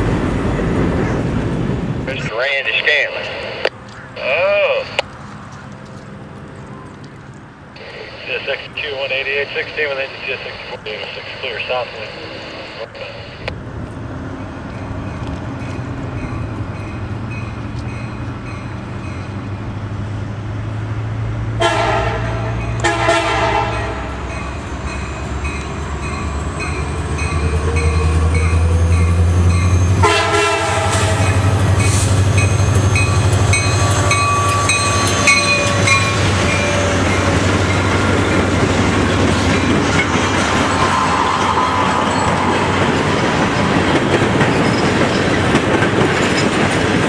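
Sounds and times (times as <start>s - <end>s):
locomotive engine drone: 0.0s - 47.0s
rail cars clattering over track: 13.6s - 20.8s, 21.6s - 47.0s
train horn blasts: 21.6s - 24.2s, 29.9s - 31.6s.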